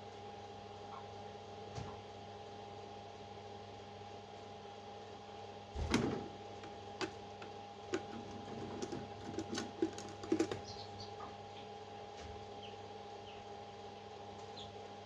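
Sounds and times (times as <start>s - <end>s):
steady low hum: 5.0s - 15.0s.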